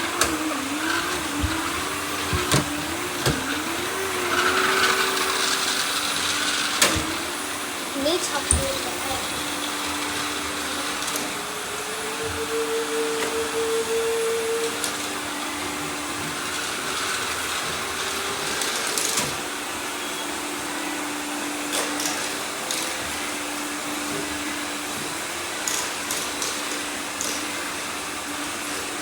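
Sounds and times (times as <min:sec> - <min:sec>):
robot vacuum cleaners whirring: 0:00.0 - 0:29.0.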